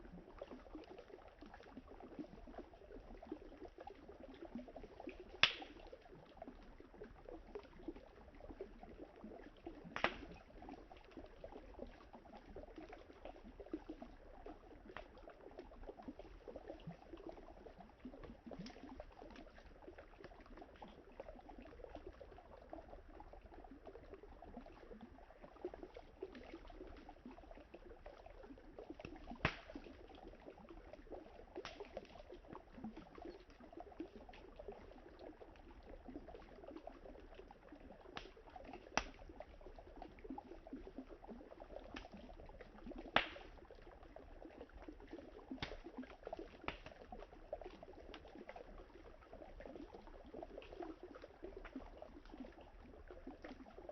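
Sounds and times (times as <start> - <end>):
campfire crackling: 5.4 - 5.8, 10.0 - 10.3, 43.2 - 43.4, 46.7 - 46.9
sharp pops from fire: 5.4 - 5.8, 10.0 - 10.4, 29.4 - 29.8, 43.2 - 43.5.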